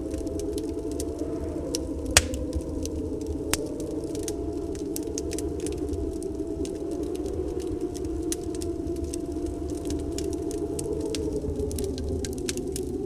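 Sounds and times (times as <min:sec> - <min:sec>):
snowstorm wind whistling: 0:00.0 - 0:13.0
wood fire crackling: 0:00.0 - 0:13.0.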